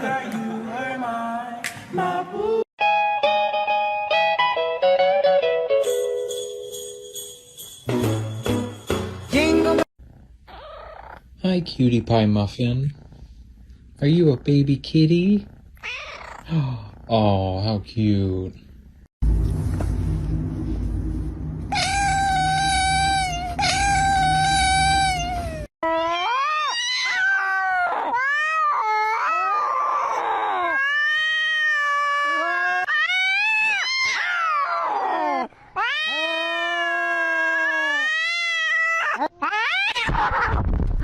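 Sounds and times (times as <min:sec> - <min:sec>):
cats yowling: 0:15.8 - 0:16.5, 0:21.7 - 0:40.5
low rumble: 0:19.2 - 0:25.6.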